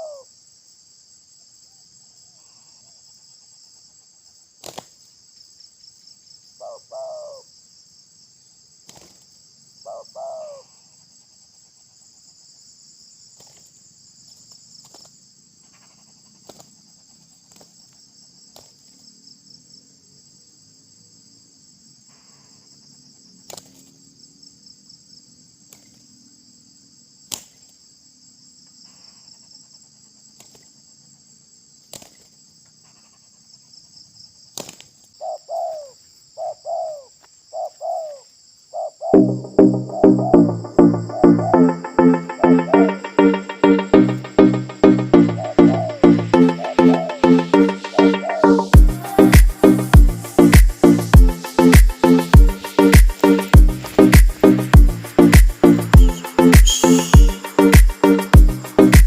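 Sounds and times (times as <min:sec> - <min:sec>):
dove cooing: 0:00.0 - 0:00.3, 0:06.6 - 0:07.4, 0:09.9 - 0:10.6, 0:35.2 - 0:38.2, 0:45.3 - 0:47.2
insect chorus: 0:00.0 - 0:41.5, 0:46.6 - 0:59.0.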